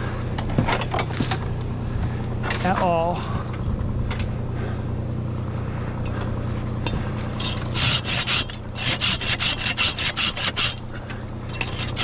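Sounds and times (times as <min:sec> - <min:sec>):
low steady hum: 0:00.0 - 0:12.0
handsaw cutting tree limb: 0:07.3 - 0:10.9, 0:11.6 - 0:12.0.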